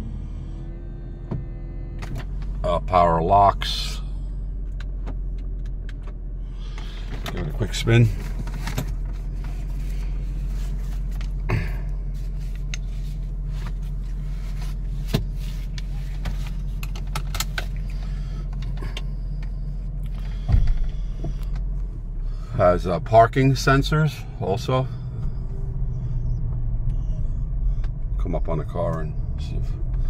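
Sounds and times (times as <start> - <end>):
car engine humming at low revs: 0.0 - 30.0
thump: 20.5 - 20.9.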